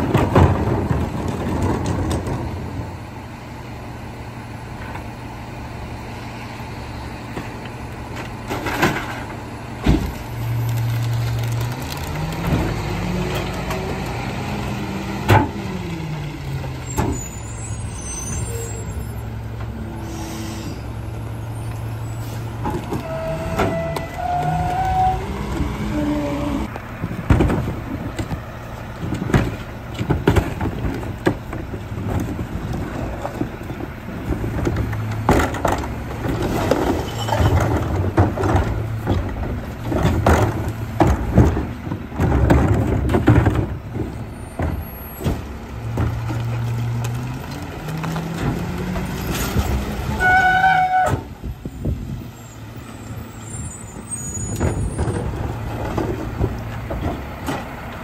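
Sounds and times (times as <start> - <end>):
bins banging and clattering: 0.0 - 3.2, 7.3 - 19.8, 22.1 - 52.2, 53.2 - 58.0
garbage truck engine running: 0.0 - 58.0
short high squeal: 16.9 - 19.3, 20.0 - 20.9.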